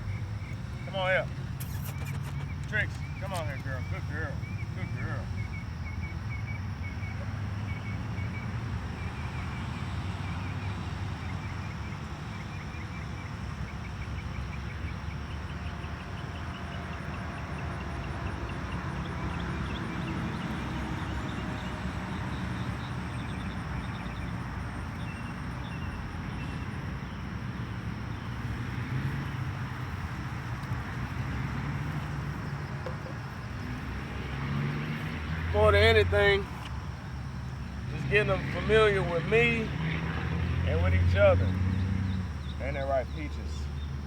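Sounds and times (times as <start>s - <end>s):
small animals chirping: 0.0s - 5.7s.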